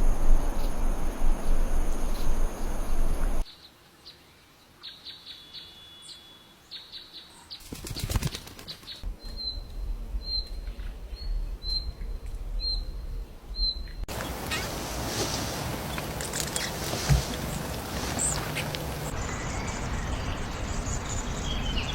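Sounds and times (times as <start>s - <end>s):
small birds chirping: 0.0s - 3.4s, 6.7s - 21.9s
wing flapping: 7.6s - 9.1s, 14.1s - 19.4s.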